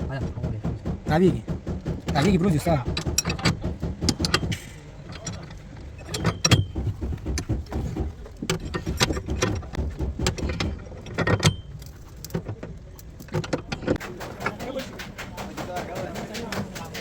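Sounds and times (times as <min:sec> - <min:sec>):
metal knocks and clinks: 0:01.8 - 0:16.8.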